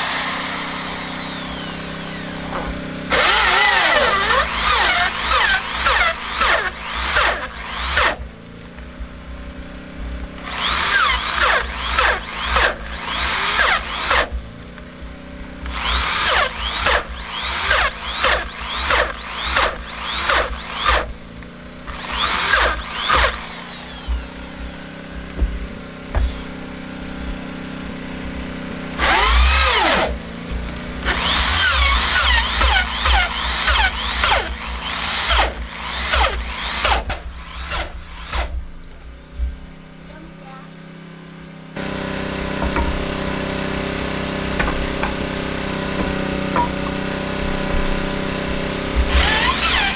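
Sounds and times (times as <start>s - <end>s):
power drill bursts into wood: 0.0s - 8.2s, 10.4s - 14.4s, 15.6s - 21.3s, 21.9s - 25.2s, 29.0s - 38.6s, 49.0s - 49.9s.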